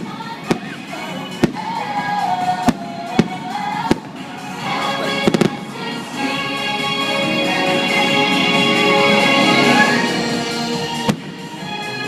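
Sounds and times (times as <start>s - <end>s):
fireworks bangs: 0.0s - 4.5s, 5.1s - 5.9s
fireworks crackles: 0.0s - 6.5s
orchestral music: 0.0s - 12.0s.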